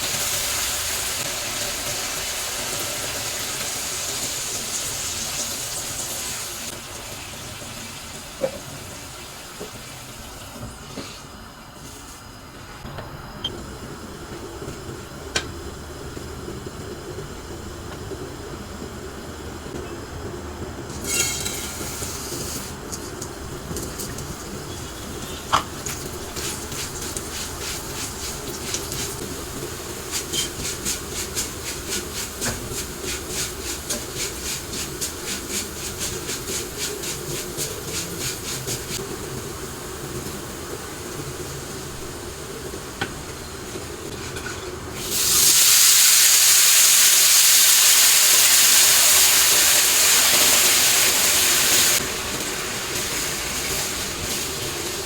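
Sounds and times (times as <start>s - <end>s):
loud steady hiss: 24.4s - 55.0s.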